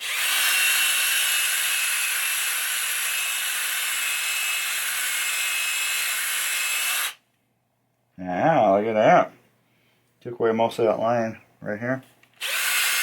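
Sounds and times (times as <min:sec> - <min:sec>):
electric drill polishing whir: 0:00.0 - 0:07.2, 0:12.4 - 0:13.0.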